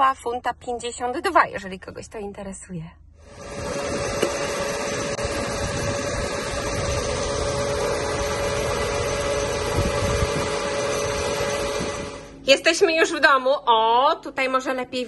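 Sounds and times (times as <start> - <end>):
motor whirring with whine: 3.2 - 12.4.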